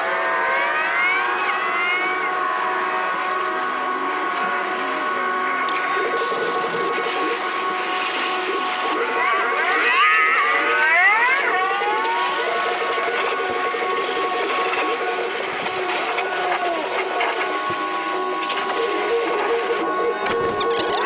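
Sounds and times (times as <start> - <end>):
car wash machinery whining: 0.0 - 21.0.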